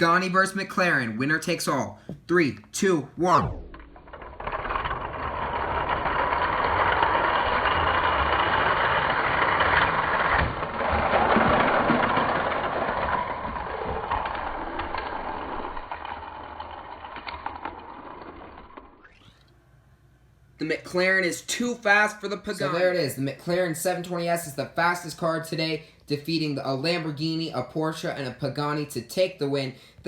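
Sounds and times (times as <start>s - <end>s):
toy cars rolling on plastic track: 3.9s - 19.5s.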